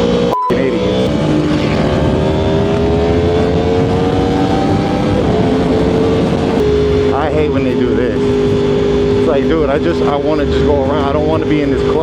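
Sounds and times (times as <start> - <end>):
motorcycle engine running: 1.1 - 9.2.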